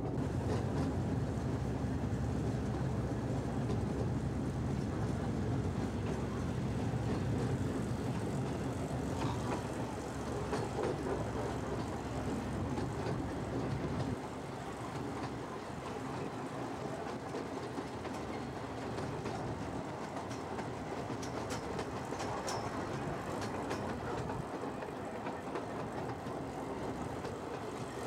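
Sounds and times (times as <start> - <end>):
miniature train rumbling: 0.0 - 28.0.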